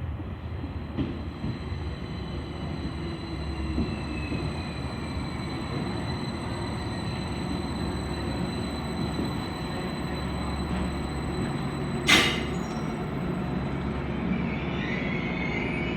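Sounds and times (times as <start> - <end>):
train rumbling: 0.0 - 15.9
train wheel squeal: 0.7 - 15.9
sharp metal clank: 12.1 - 12.8.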